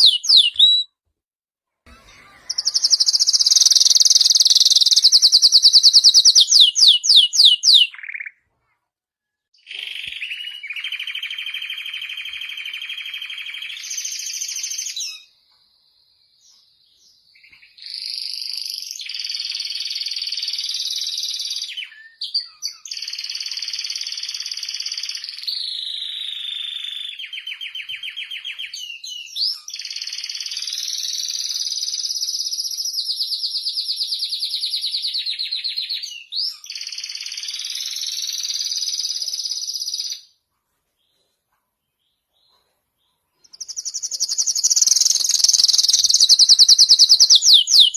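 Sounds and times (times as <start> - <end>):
canary singing trills: 0.0 - 0.9, 1.9 - 8.4, 43.1 - 47.9.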